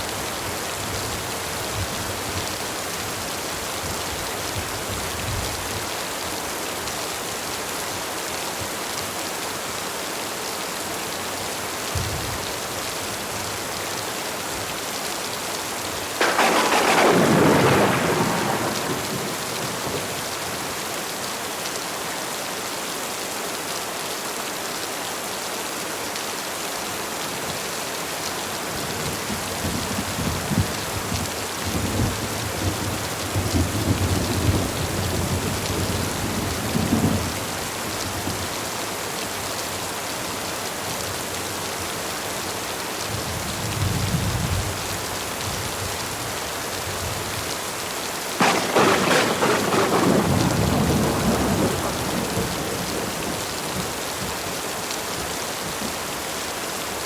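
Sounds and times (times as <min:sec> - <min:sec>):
heavy rain hissing: 0:09.6 - 0:42.8, 0:44.6 - 0:57.0
loud thunderclap: 0:16.2 - 0:20.9, 0:48.4 - 0:53.4
thunder rumbling: 0:16.2 - 0:21.0, 0:48.4 - 0:53.9.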